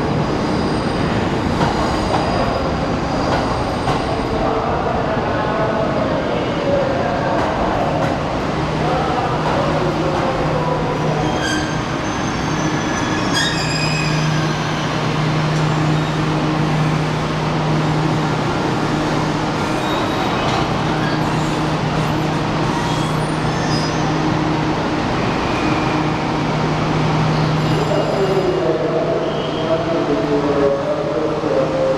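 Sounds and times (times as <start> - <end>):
high squeals of wheels and brakes: 0.2 - 4.0, 11.1 - 15.0, 19.6 - 24.2, 25.4 - 26.2, 27.4 - 28.6.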